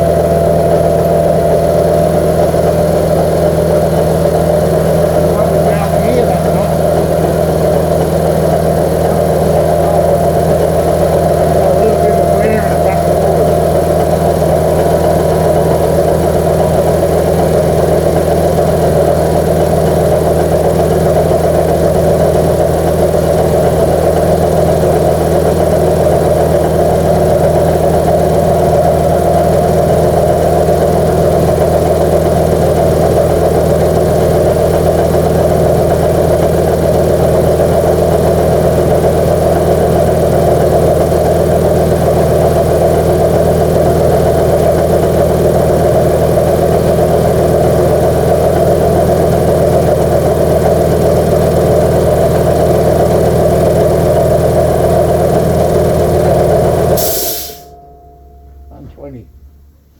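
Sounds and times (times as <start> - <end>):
air compressor running: 0.0 - 57.8.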